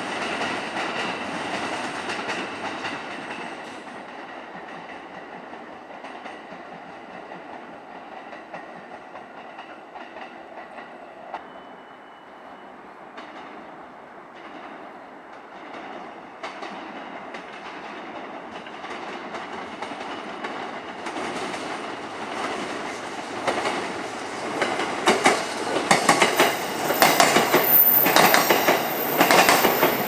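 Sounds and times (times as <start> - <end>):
train wheel and running noise: 12.9 - 30.0
high steady squeal: 26.4 - 30.0.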